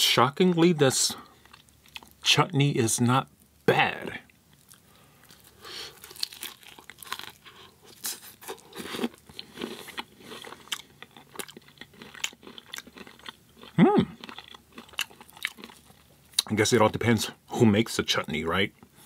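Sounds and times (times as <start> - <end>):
crunchy chewing: 1.3 - 2.2, 4.5 - 16.5
person humming: 13.8 - 14.2.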